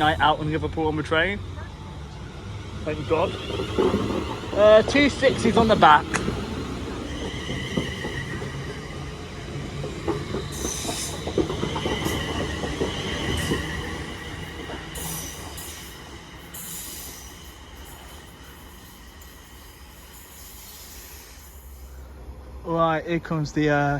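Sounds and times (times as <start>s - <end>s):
train steady whine: 0.0s - 23.9s
train wheels squealing: 2.6s - 22.2s
train wheels knocking on rail joints: 3.0s - 18.2s.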